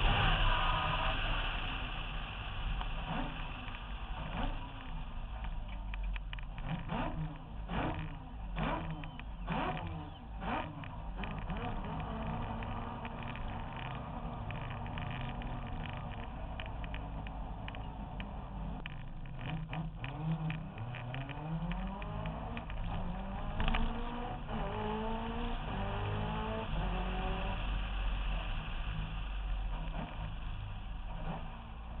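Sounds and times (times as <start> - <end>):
car engine rumbling and revving: 0.0 - 32.0.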